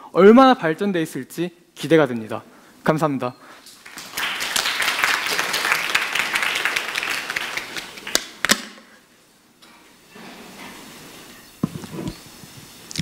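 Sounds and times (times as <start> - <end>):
audience applauding: 3.8 - 8.4.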